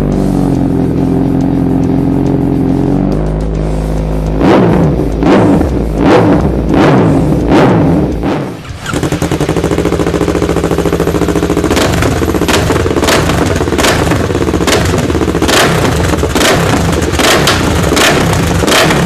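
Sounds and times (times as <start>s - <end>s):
motorcycle engine running: 0.0s - 19.0s
loud thumps: 4.4s - 19.0s.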